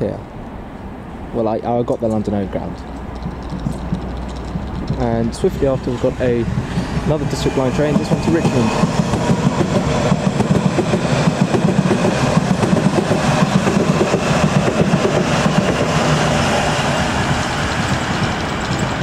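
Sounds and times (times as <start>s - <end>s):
underground train running: 0.0s - 19.0s.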